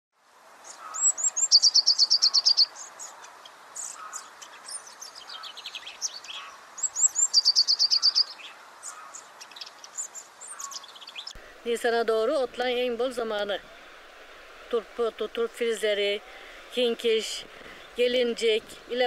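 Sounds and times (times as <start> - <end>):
songbird singing fast run: 0.6 - 13.8
birds chirping: 0.6 - 19.0.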